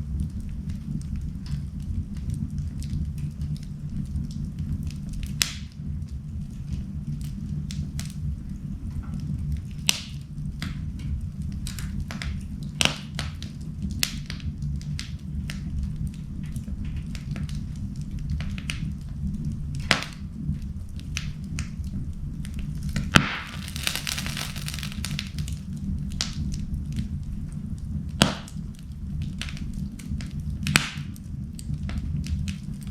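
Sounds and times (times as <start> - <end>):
low rumble of flames: 0.0 - 32.9
wood crackling and popping: 0.0 - 32.9
fire hissing: 17.1 - 26.9.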